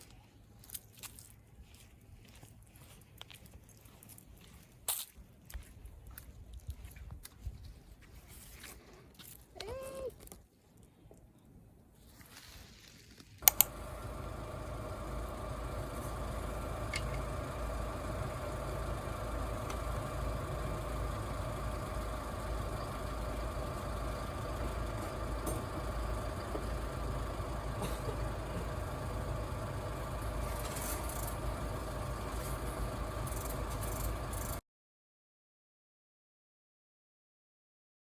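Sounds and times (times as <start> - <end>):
faint steady hum: 13.4 - 34.6
sharp clicks: 13.4 - 34.6
vehicle engine rumbling: 13.4 - 34.6.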